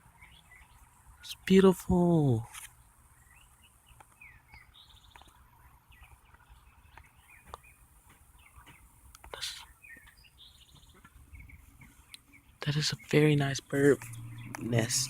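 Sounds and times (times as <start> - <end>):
faint bird chirps: 0.0 - 15.0
buzzy bird trill: 5.9 - 15.0
sharp clicks: 9.1 - 9.4.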